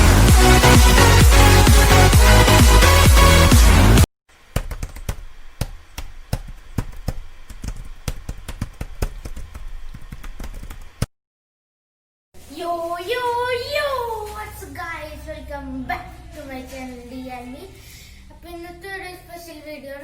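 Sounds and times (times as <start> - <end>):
electronic dance music: 0.0 - 4.1
sharp taps and clicks: 4.5 - 11.1.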